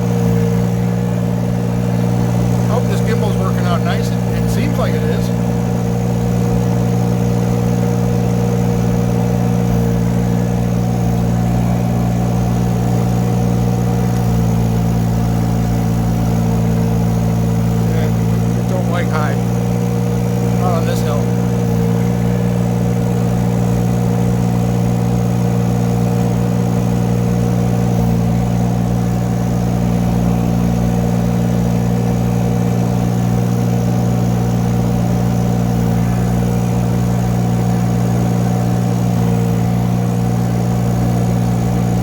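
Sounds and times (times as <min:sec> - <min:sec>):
excavator engine running: 0:00.0 - 0:42.0.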